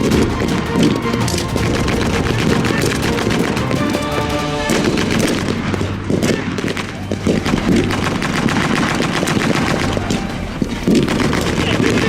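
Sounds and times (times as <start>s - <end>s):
blank rifle shots: 4.7s - 12.0s.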